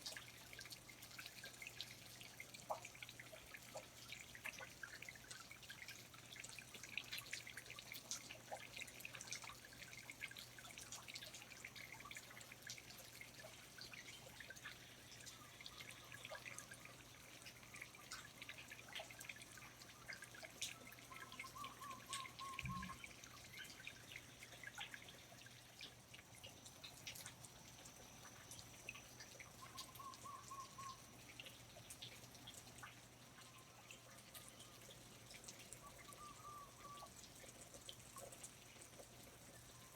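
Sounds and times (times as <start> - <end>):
water dripping: 0.0 - 39.9
short warbling call: 21.5 - 23.0.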